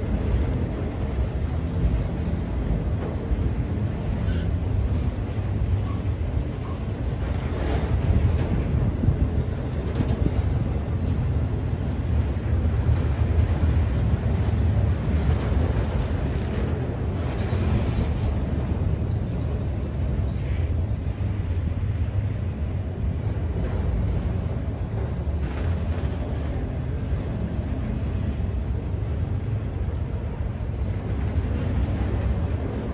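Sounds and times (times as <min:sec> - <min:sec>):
train wheels rumbling on rails: 0:00.0 - 0:32.9.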